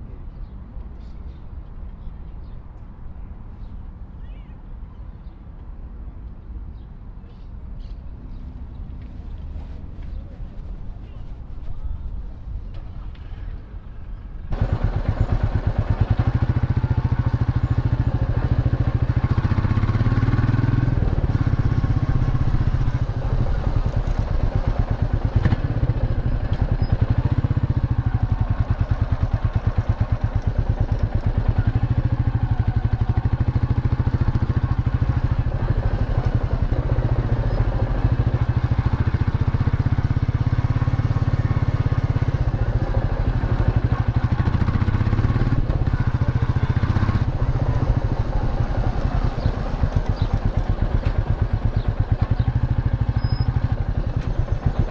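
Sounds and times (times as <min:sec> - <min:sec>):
motorcycle engine running: 0:14.5 - 0:54.9.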